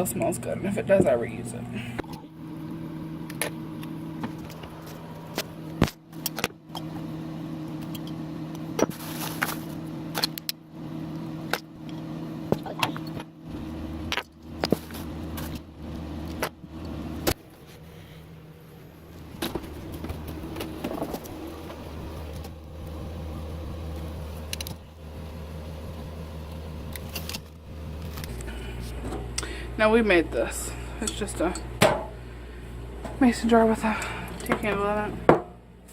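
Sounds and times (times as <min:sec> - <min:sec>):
steady electrical hum: 0:00.0 - 0:35.9.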